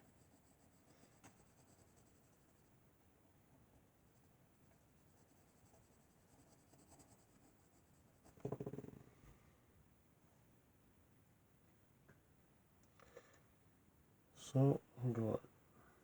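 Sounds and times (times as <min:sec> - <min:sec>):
pencil scratching on paper: 0:00.0 - 0:02.7, 0:04.1 - 0:08.5.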